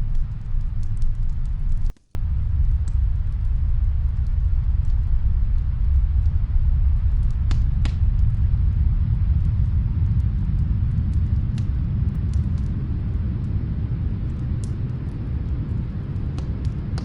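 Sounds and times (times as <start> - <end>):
faint wood fire crackling: 0.0 - 17.0
snowstorm wind rumble: 0.0 - 17.0.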